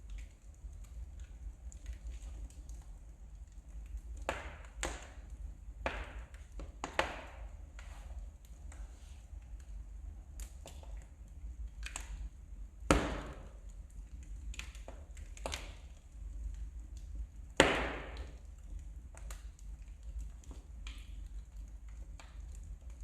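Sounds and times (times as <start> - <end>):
loud pops from burning logs: 0.0 - 23.0
wood fire crackling: 0.0 - 23.0.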